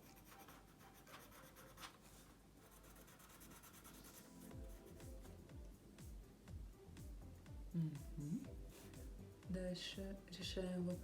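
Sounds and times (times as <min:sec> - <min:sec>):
music with low pulsing beat: 0:03.8 - 0:11.0.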